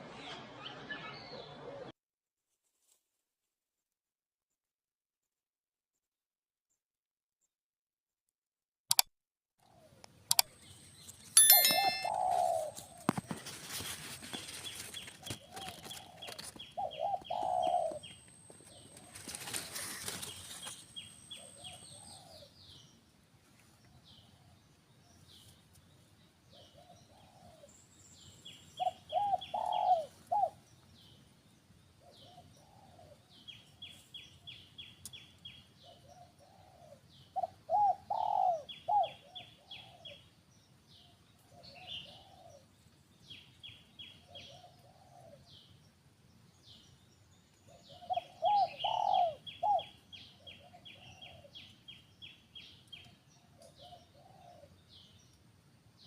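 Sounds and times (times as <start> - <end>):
rapid high chirping trills: 11.4 - 12.7
low cooing bird call: 11.4 - 13.1, 15.2 - 20.7, 21.3 - 22.8, 26.5 - 27.8, 28.7 - 30.6, 32.0 - 34.6, 35.8 - 40.3, 41.4 - 42.7, 43.6 - 45.7, 47.6 - 51.7, 52.9 - 55.1.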